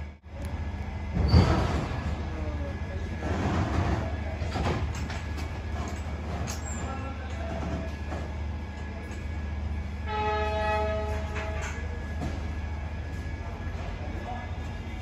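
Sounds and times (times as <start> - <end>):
train rumbling on track: 0.0 - 15.0
coaches rattling and clanking: 3.0 - 9.6.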